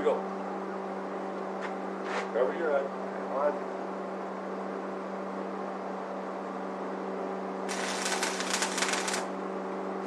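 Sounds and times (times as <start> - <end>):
steady hum: 7.4 - 10.0
welding arc crackling: 7.7 - 9.3.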